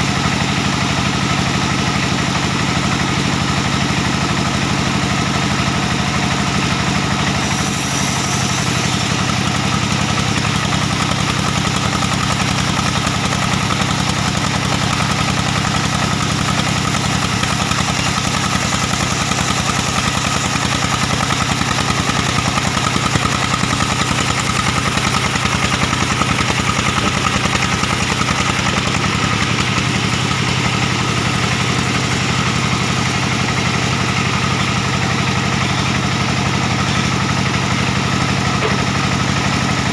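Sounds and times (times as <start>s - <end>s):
diesel engine running: 0.0s - 39.9s
band saw hissing through log: 7.2s - 10.7s.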